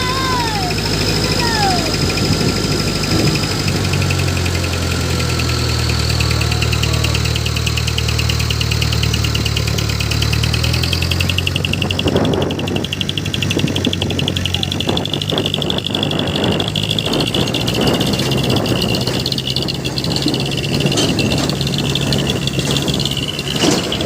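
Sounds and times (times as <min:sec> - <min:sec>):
diesel engine running: 0:00.0 - 0:24.0
high-pitched pulsing: 0:00.0 - 0:24.0.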